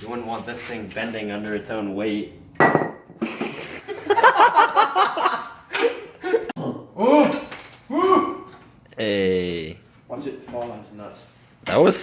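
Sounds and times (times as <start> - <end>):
men laughing: 3.2 - 6.6.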